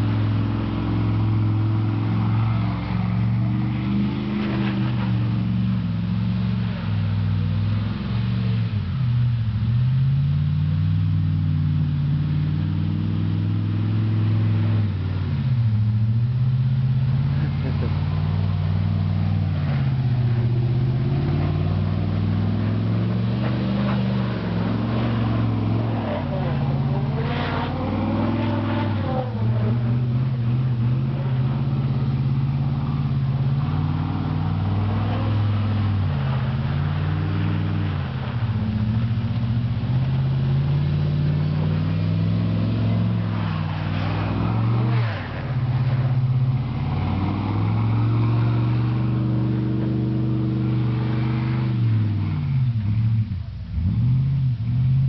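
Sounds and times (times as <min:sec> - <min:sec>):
truck engine revving: 0:00.0 - 0:55.0.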